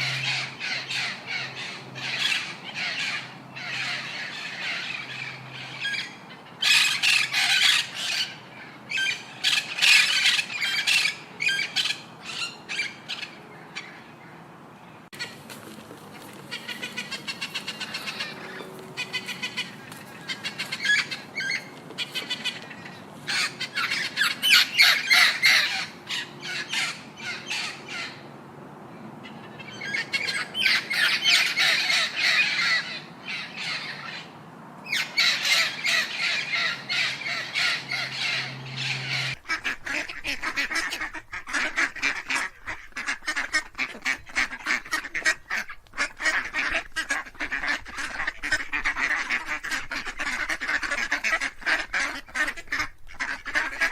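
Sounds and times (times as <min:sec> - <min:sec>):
fowl squawking: 0:00.0 - 0:14.0, 0:15.2 - 0:28.2, 0:29.4 - 0:53.9.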